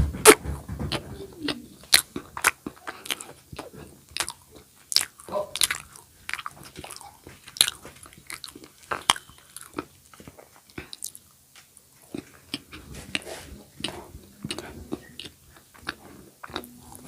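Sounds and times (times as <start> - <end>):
crunchy snack chewing: 1.5 - 11.3, 12.0 - 17.0.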